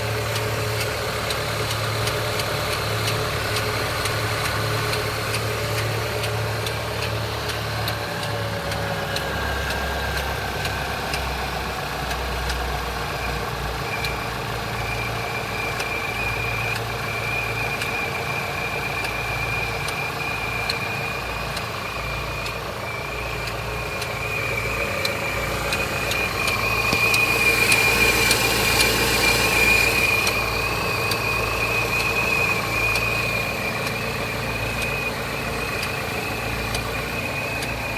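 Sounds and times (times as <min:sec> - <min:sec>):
car engine idling: 0:00.0 - 0:37.9
light irregular ticking: 0:00.0 - 0:37.9
high whine: 0:21.6 - 0:37.9.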